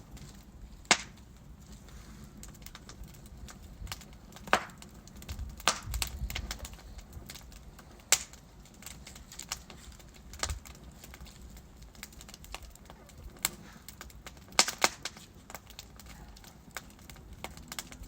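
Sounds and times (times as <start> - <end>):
logs crackling and popping: 0.0 - 18.0
low rumble of flame: 0.0 - 18.0.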